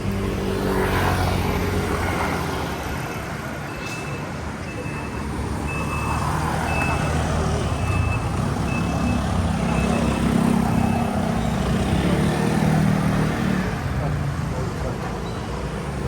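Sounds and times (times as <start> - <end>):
street traffic noise: 0.0 - 16.0
vehicle warning beeper: 2.2 - 11.3.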